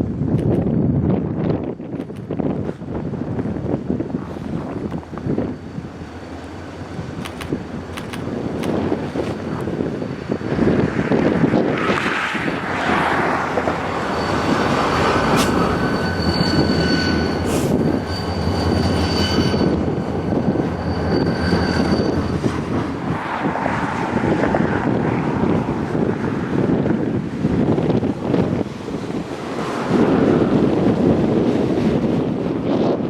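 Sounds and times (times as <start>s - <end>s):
freight train rolling past: 2.4s - 33.0s
high wheel squeal: 13.5s - 23.2s.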